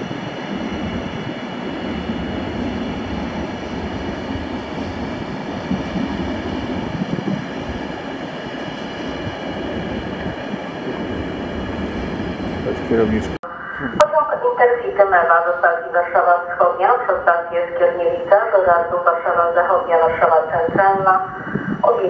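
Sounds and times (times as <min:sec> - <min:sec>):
train wheels rolling on rails: 0:00.0 - 0:13.4.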